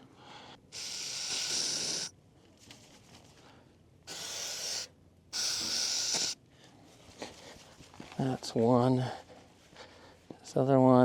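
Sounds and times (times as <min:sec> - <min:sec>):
aerosol spray hissing: 0:00.8 - 0:02.1, 0:04.1 - 0:06.4.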